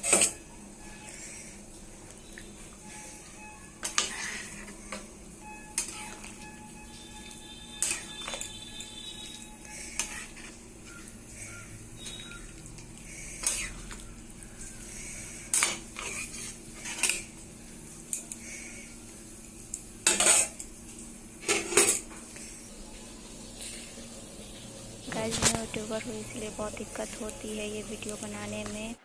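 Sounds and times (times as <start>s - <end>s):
metal utensils clinking against pot: 0.0s - 0.5s, 3.8s - 5.1s, 5.7s - 6.6s, 7.2s - 11.1s, 15.5s - 17.3s, 20.0s - 20.7s, 21.4s - 22.2s.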